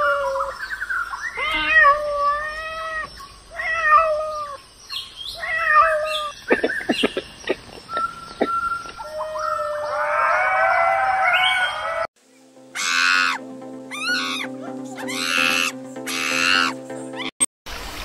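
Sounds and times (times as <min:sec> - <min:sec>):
lemurs chirping: 0:00.0 - 0:12.0, 0:12.8 - 0:17.3
monkey shrill calls: 0:01.2 - 0:12.0, 0:12.8 - 0:17.3
background music chord: 0:12.2 - 0:17.3.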